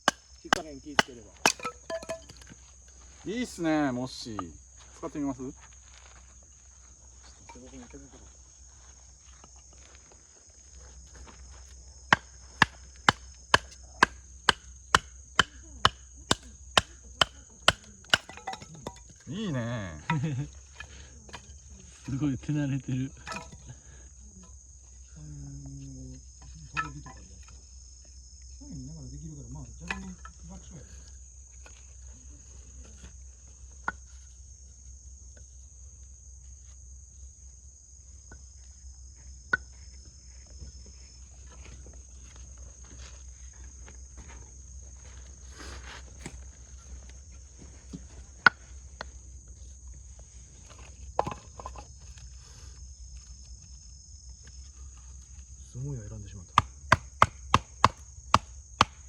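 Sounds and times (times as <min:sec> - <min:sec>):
wood splitting knocks: 0:00.0 - 0:02.5, 0:12.1 - 0:19.0, 0:56.6 - 0:59.0
crickets chirping: 0:00.0 - 0:59.0
insects droning: 0:00.0 - 0:59.0.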